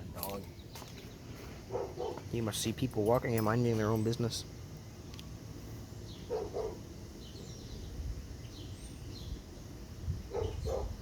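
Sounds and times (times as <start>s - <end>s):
dog barking faintly: 1.7s - 2.3s.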